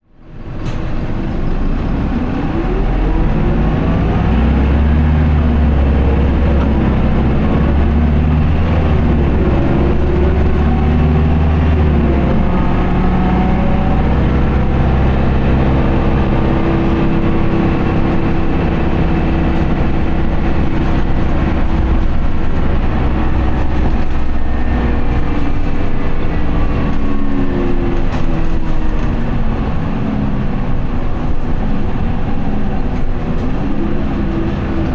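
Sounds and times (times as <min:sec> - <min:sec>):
bus diesel engine accelerating: 0:00.0 - 0:34.9.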